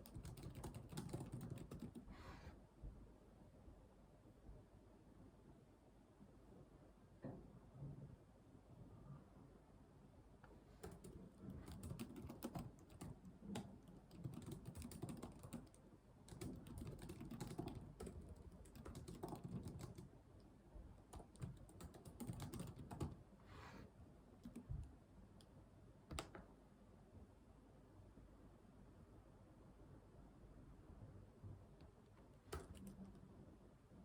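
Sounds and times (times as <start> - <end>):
computer keyboard typing: 0.0 - 2.1, 10.8 - 20.1, 21.1 - 23.2, 24.4 - 24.8, 32.5 - 33.2.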